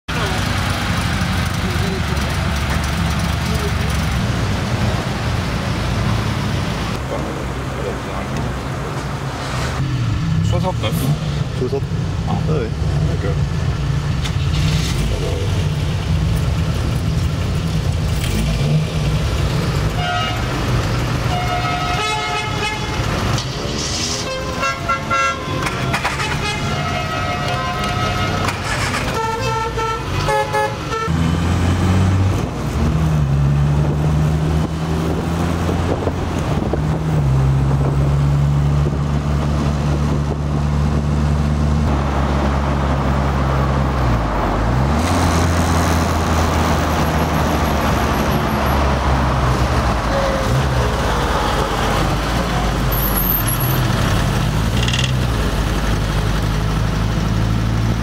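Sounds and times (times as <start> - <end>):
car horns tooting: 19.9 - 20.6, 21.2 - 23.3, 24.2 - 31.2, 50.0 - 50.7.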